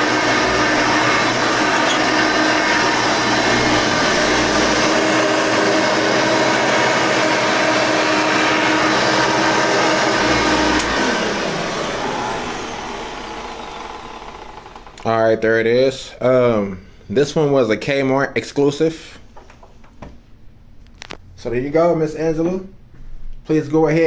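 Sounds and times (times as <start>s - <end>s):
upright vacuum cleaner running: 0.0s - 15.2s
vacuum motor winding down: 0.0s - 15.2s.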